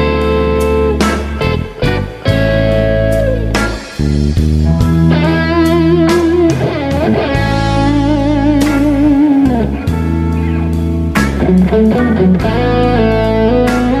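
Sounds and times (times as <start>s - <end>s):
electric guitar playing slow blues: 0.0s - 14.0s.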